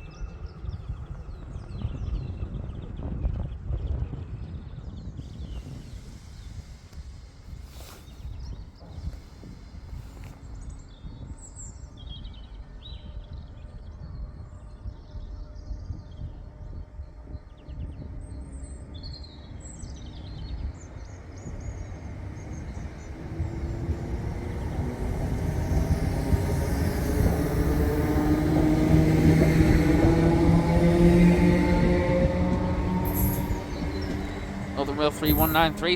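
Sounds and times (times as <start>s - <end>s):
train approaching: 5.0s - 12.0s, 17.2s - 35.9s
small birds chirping: 33.0s - 35.9s.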